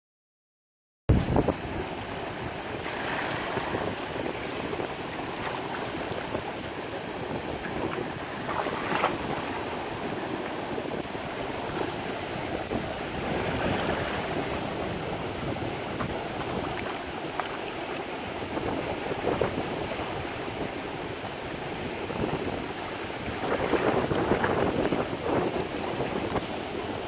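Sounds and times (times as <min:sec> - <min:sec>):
sea waves washing: 0:01.1 - 0:27.0.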